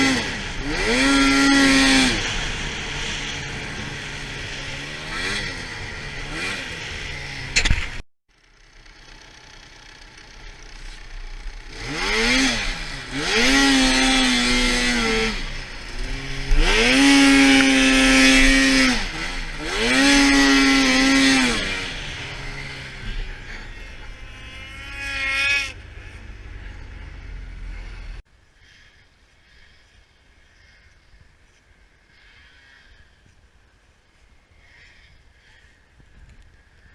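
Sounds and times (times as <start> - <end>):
snowmobile engine revving: 0.0 - 8.0, 9.1 - 29.7.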